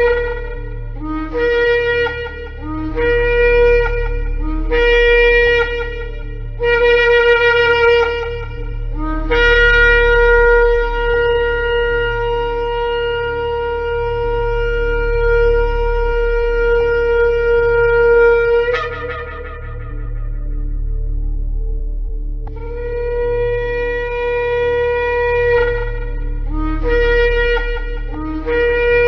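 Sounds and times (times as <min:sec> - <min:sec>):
shofar blasts: 0:00.0 - 0:21.4, 0:22.5 - 0:29.0
low hum: 0:00.0 - 0:29.0.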